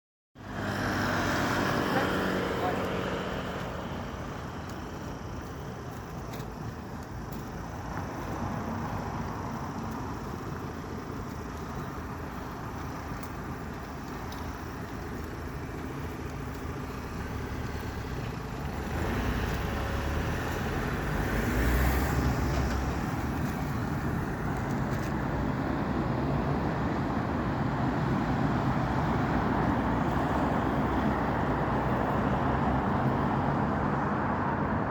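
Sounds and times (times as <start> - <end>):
road traffic driving past: 0.4 - 34.9
vehicle passing close: 16.8 - 25.1.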